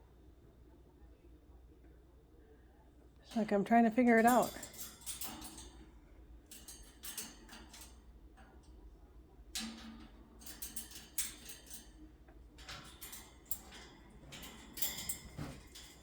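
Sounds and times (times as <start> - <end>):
parrot clicking on cage bars: 4.2 - 8.8, 9.5 - 16.0.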